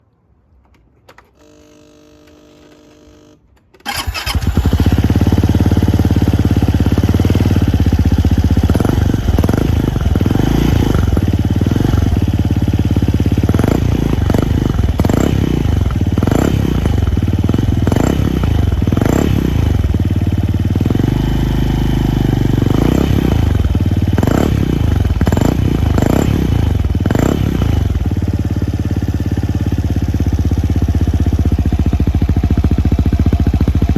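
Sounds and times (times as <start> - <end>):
engine throttle blips: 3.9 - 5.0
scooter engine idling: 3.9 - 33.9.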